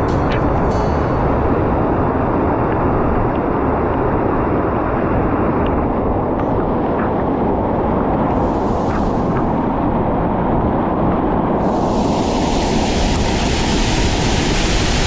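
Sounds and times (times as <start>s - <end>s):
waterfall rushing: 11.6s - 15.0s.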